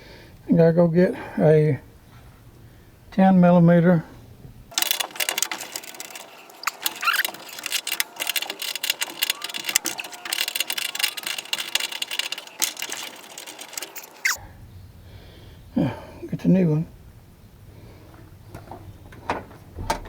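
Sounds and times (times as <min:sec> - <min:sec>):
metal tools clinking and rattling: 0:04.7 - 0:14.4.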